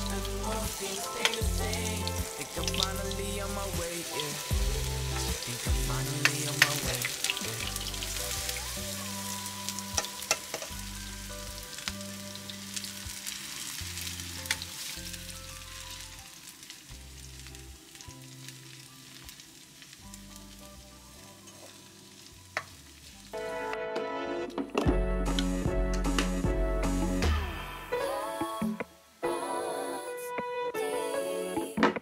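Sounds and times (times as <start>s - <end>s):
pancakes sizzling in oil: 0.0s - 23.4s
spoon tapping a pan: 9.9s - 10.8s.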